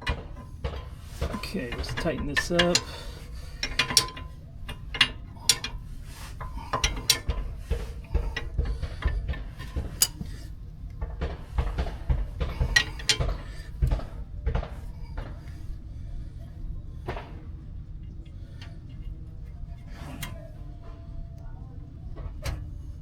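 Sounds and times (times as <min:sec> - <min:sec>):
wrench clicking on metal: 0:00.0 - 0:10.5, 0:12.5 - 0:14.1
steady low hum: 0:00.0 - 0:23.0.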